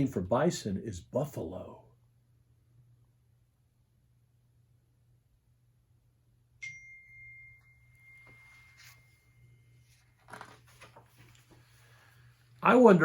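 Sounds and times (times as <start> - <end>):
bright chime ding: 6.6 - 9.0
soft brushing noise: 8.2 - 12.6.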